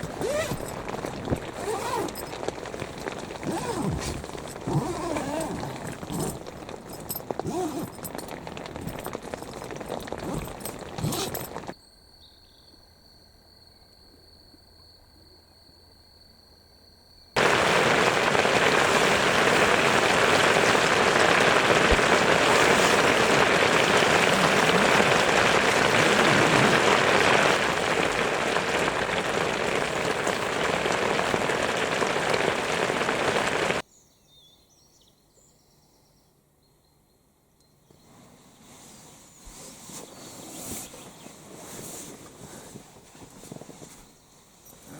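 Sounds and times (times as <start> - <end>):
heavy rain: 0.0 - 11.7, 17.4 - 33.8
patter of drops: 0.0 - 11.8, 17.4 - 33.8.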